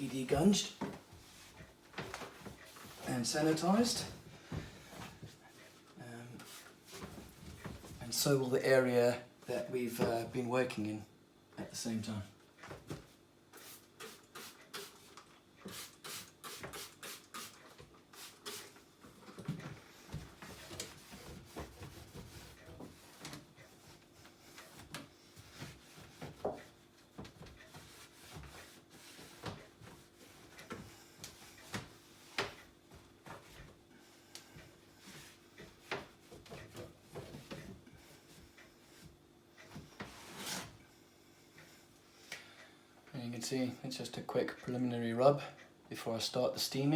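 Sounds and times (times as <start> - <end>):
rubbing and wiping dishwasher: 13.6 - 33.8.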